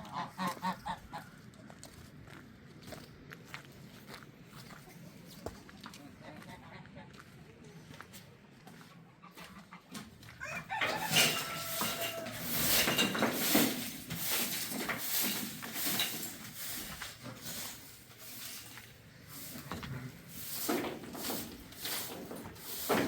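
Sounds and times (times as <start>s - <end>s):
chickens clucking and squawking: 0.0s - 1.9s, 8.7s - 23.0s
rustling and scuffling: 9.4s - 23.0s.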